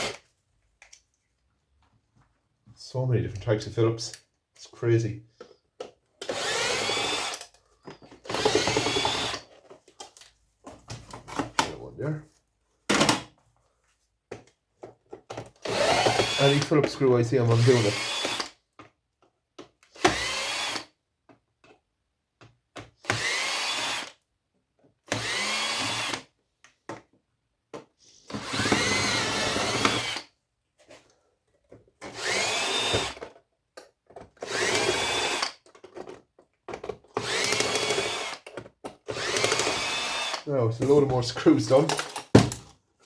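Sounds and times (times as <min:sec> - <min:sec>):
power drill whining: 0:00.0 - 0:00.2, 0:06.2 - 0:09.6, 0:15.6 - 0:16.7, 0:17.5 - 0:18.6, 0:19.9 - 0:21.0, 0:23.0 - 0:24.2, 0:25.1 - 0:26.3, 0:28.3 - 0:30.3, 0:32.0 - 0:33.3, 0:34.4 - 0:35.7, 0:37.1 - 0:41.8.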